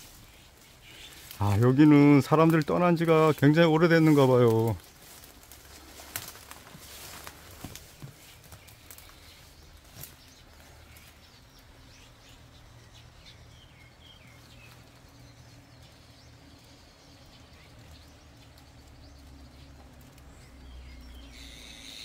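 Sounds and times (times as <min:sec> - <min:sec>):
hissing rustle: 0:00.0 - 0:11.8
faint bird chirps: 0:20.4 - 0:22.0.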